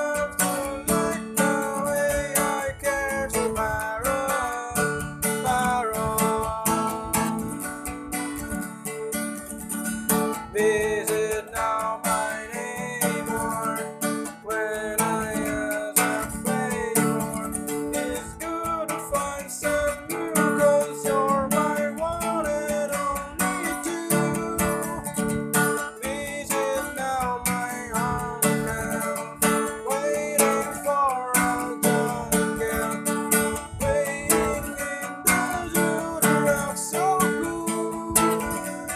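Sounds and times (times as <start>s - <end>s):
strummed acoustic guitar: 0.0s - 38.9s.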